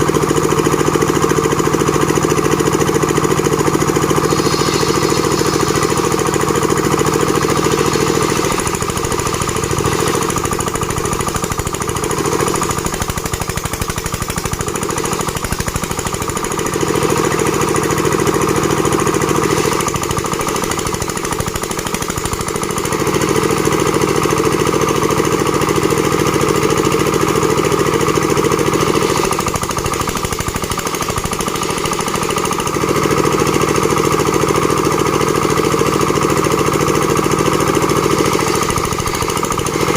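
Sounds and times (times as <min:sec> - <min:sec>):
machine running with pulsing beat: 0:02.0 - 0:24.3, 0:27.6 - 0:33.8, 0:37.6 - 0:39.9.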